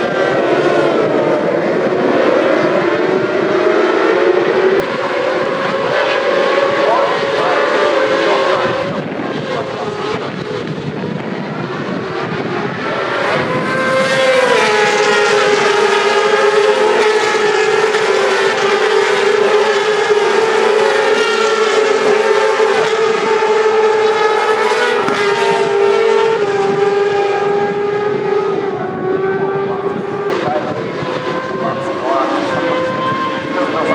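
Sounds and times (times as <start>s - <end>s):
racing motorcycle engines: 0.0s - 33.9s.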